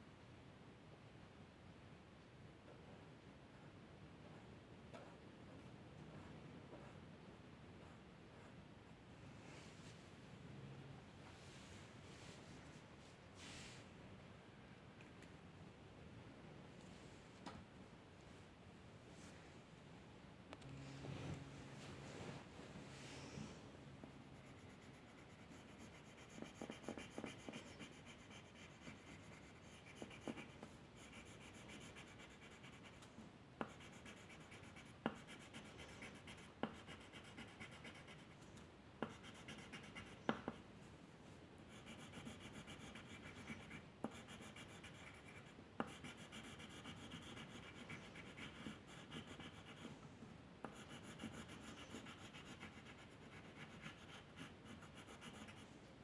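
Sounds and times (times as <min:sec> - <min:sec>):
drawing tool scratching paper: 0:24.4 - 0:33.0, 0:33.6 - 0:38.4, 0:39.0 - 0:40.2, 0:41.7 - 0:49.9, 0:50.7 - 0:55.6.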